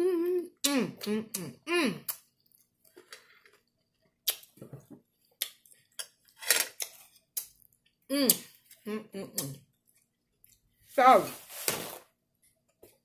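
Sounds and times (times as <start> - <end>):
wet mouth sounds: 8.1 - 8.6.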